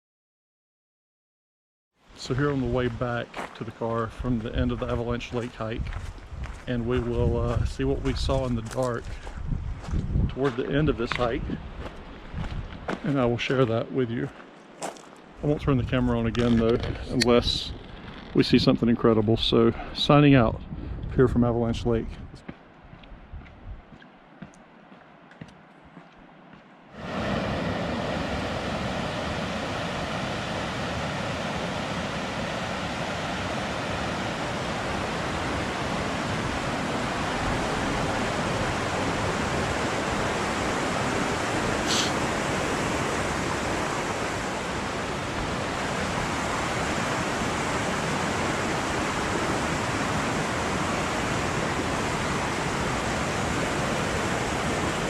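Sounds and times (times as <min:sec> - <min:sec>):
water rushing: 0:02.1 - 0:05.7, 0:27.0 - 0:55.0.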